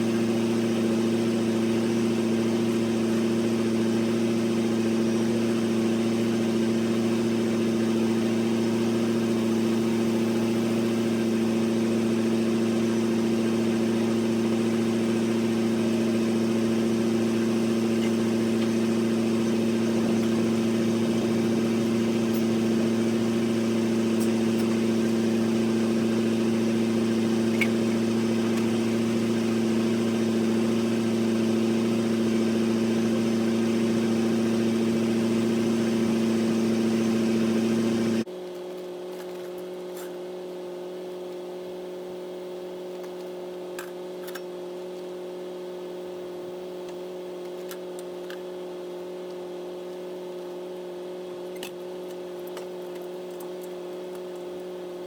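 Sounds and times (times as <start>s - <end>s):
engine idling: 0.0s - 38.3s.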